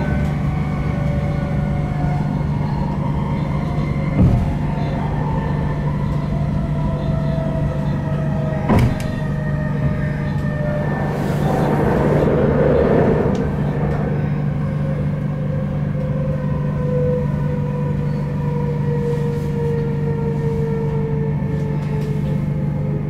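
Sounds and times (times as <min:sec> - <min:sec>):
rushing rail noise: 0:00.0 - 0:23.0
train interior hum: 0:00.0 - 0:23.0
whine falling in pitch: 0:09.7 - 0:16.0.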